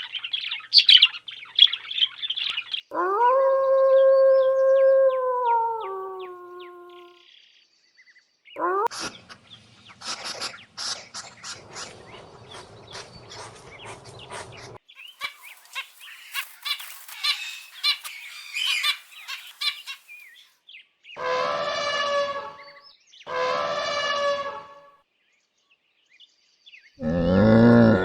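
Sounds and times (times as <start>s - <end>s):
small birds chirping: 0.0s - 21.2s
domestic fowl calling: 10.0s - 20.2s, 21.2s - 24.9s
drawn-out animal call: 21.2s - 24.8s.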